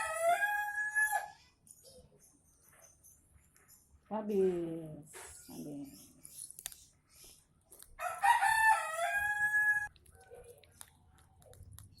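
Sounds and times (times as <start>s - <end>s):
rooster crowing: 0.0s - 1.4s, 8.0s - 9.9s.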